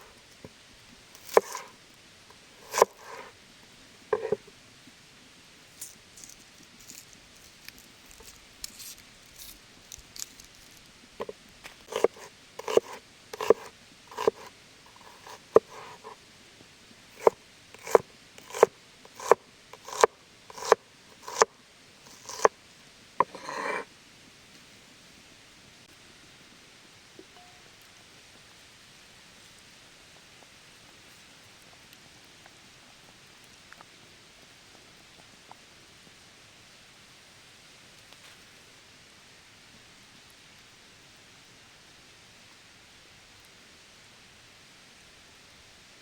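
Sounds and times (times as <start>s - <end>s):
knife chopping on cutting board: 1.2s - 1.7s, 2.6s - 3.3s, 4.2s - 4.4s, 11.9s - 16.1s, 17.2s - 21.5s, 22.1s - 22.5s, 23.2s - 23.8s
knife scraping cutting board: 1.2s - 1.7s, 2.6s - 3.3s, 4.1s - 4.5s, 11.2s - 16.2s, 17.2s - 22.5s, 23.2s - 23.9s.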